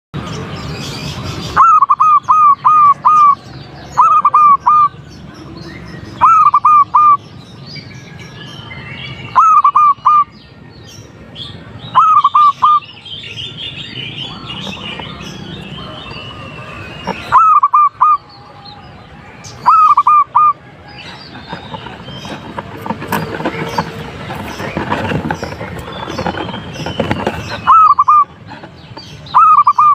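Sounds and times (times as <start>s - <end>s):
small birds chirping: 0.2s - 29.9s
dove cooing: 1.6s - 3.4s, 4.0s - 5.0s, 6.2s - 7.2s, 9.4s - 10.3s, 12.0s - 12.8s, 17.0s - 18.2s, 19.6s - 28.6s, 29.3s - 29.9s.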